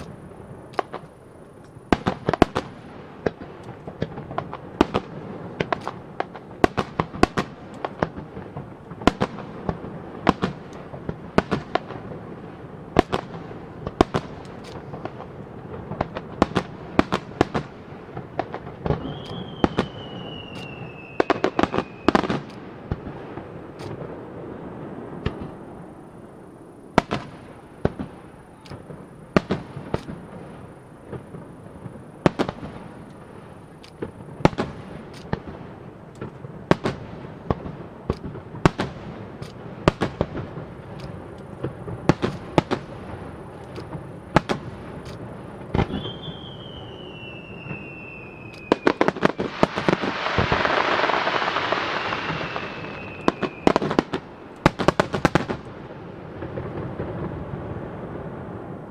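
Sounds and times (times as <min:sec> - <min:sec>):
firework shells bursting: 0:00.0 - 0:55.8
descending firework whistle: 0:17.2 - 0:35.4, 0:41.8 - 0:58.9.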